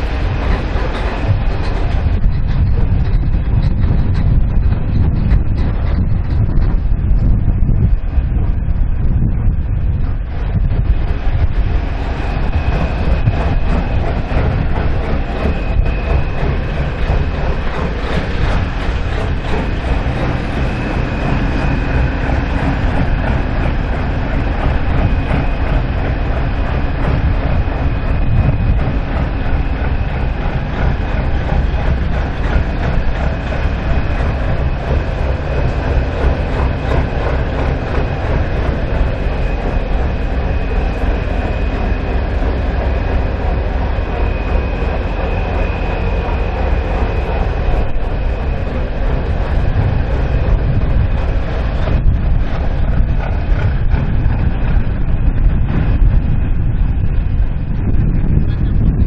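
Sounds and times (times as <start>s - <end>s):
diesel truck engine running: 10.5s - 55.8s.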